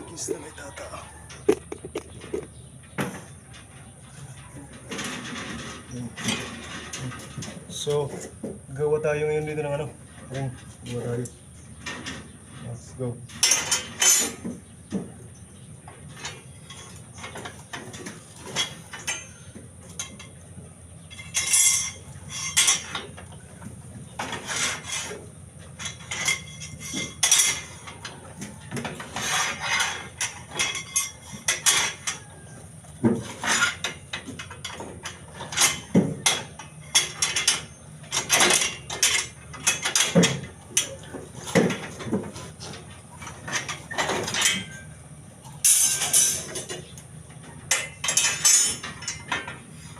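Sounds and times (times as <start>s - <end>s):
steel bars clinking and knocking: 13.3s - 15.0s, 16.1s - 20.4s, 21.0s - 23.6s, 24.2s - 49.8s.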